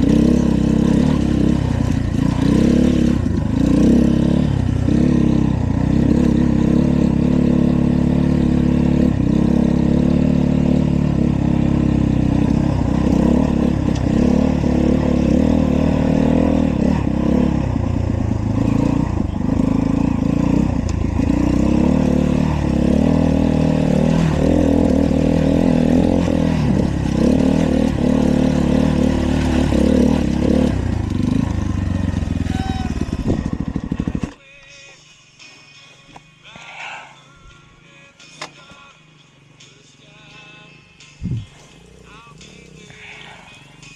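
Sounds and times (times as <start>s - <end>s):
dirt bike engine revving: 0.0s - 34.4s.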